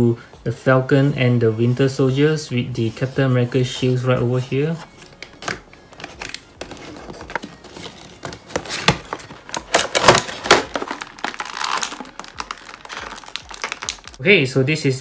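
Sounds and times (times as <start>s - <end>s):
plastic tray crinkling: 5.5s - 14.2s
cardboard box being opened: 6.0s - 13.9s.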